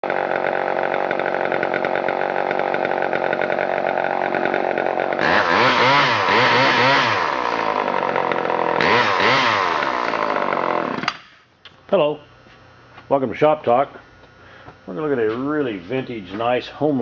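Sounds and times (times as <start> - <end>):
chainsaw engine revving: 0.0 - 11.4.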